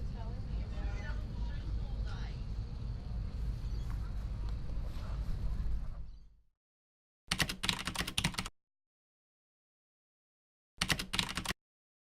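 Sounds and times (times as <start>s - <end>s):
keyboard typing clicks: 7.3s - 8.5s, 10.8s - 11.6s.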